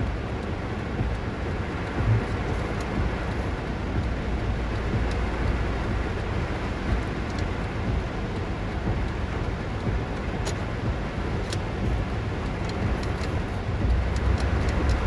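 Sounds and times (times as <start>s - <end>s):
heavy rain: 0.0s - 15.0s
sharp ticks: 0.0s - 15.0s
strong wind: 0.0s - 15.0s.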